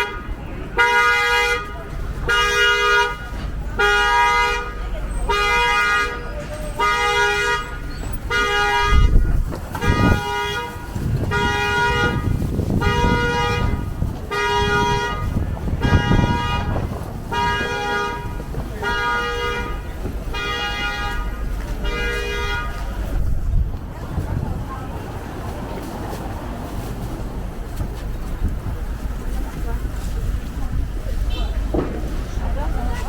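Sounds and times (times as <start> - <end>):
car horn honking: 0.0 - 23.0, 31.2 - 31.8
low traffic rumble: 0.0 - 33.0.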